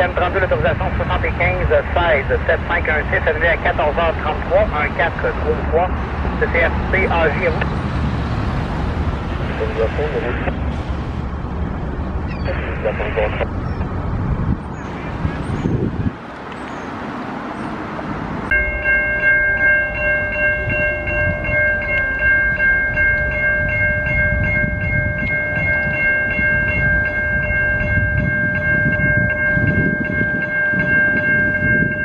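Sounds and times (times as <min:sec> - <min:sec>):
level crossing warning bell: 0:00.0 - 0:07.7, 0:18.5 - 0:32.0
low rumble of rail traffic: 0:00.0 - 0:32.0.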